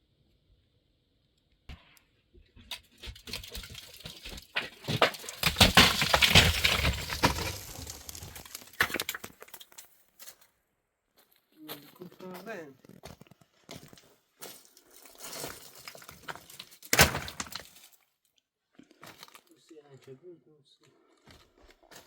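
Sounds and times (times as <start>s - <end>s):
firewood crackling and snapping: 2.6s - 10.4s, 12.8s - 18.0s.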